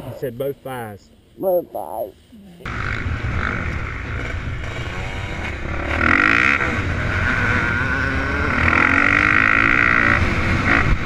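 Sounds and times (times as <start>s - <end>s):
dirt bike engine revving: 2.7s - 11.0s.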